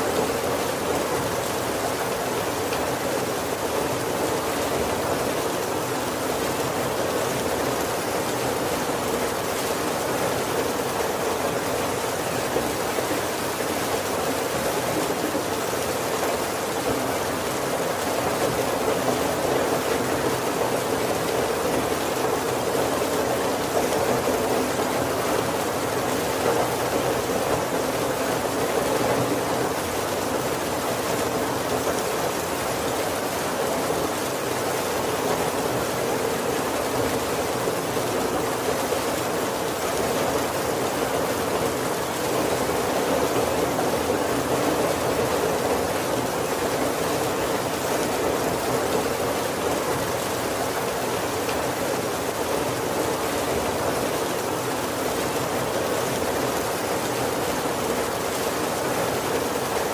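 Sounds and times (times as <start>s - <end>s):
heavy rain on wooden roof: 0.0s - 59.9s.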